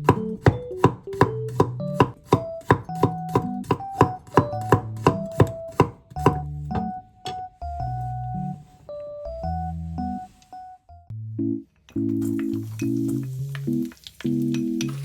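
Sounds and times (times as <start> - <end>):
knife chopping on cutting board: 0.0 - 7.4.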